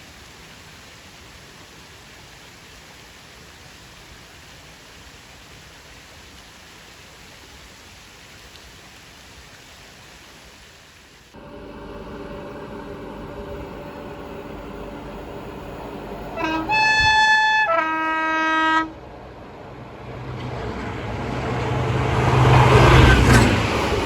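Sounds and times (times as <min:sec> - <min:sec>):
locomotive engine hum: 0:11.4 - 0:24.0
rushing noise: 0:11.4 - 0:24.0
locomotive two-tone horn: 0:11.6 - 0:19.5.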